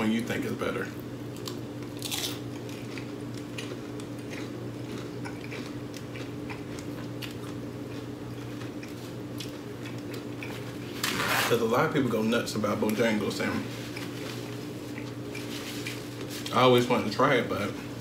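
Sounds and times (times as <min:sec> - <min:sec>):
steady low hum: 0:00.0 - 0:18.0
person chewing crunchy food: 0:01.3 - 0:11.3, 0:13.6 - 0:16.6.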